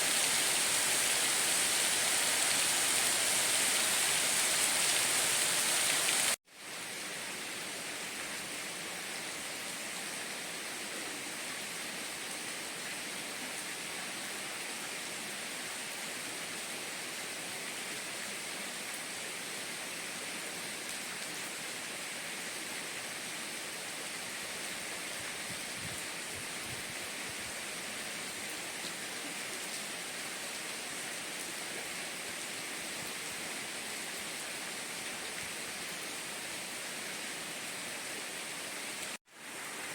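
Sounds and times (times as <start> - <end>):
rain hissing: 0.0 - 6.9, 32.4 - 39.9.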